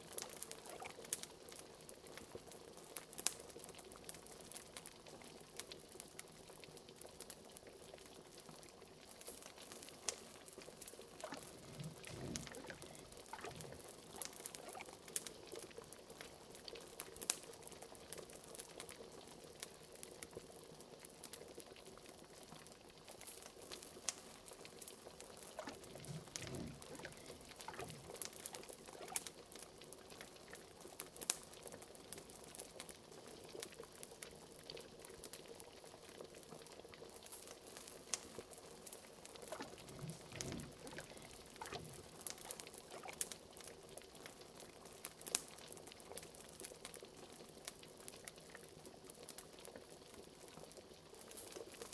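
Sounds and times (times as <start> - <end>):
liquid bubbling at a simmer: 0.0 - 51.9
small sharp pops and crackles: 0.0 - 51.9
deep bubble gloops: 0.6 - 1.0, 11.1 - 15.0, 25.4 - 29.3, 39.4 - 43.3.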